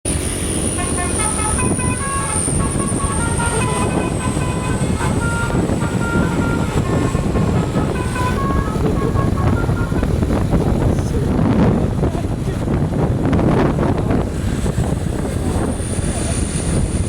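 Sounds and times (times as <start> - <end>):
low engine rumble: 0.1 - 17.0
musical truck horn tune: 0.3 - 11.0.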